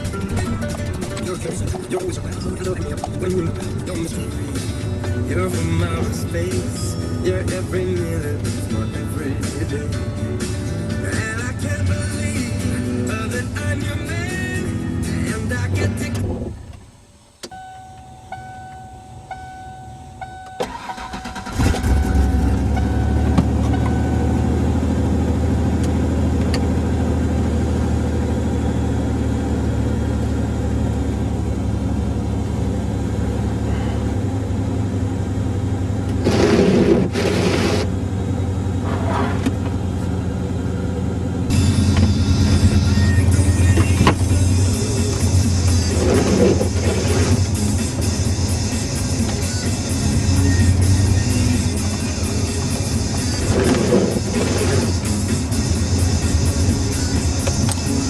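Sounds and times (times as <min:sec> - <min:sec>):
music: 0:00.0 - 0:16.5, 0:41.5 - 0:58.0
engine cranking and idling: 0:00.0 - 0:58.0
warning chime tone: 0:17.5 - 0:24.5.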